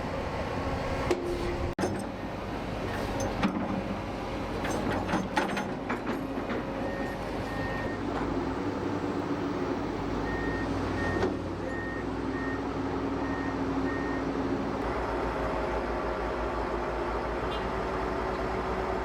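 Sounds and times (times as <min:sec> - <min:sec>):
heavy construction machinery running: 0:00.0 - 0:19.0
reversing alarm beeping: 0:10.2 - 0:12.6, 0:13.2 - 0:14.4.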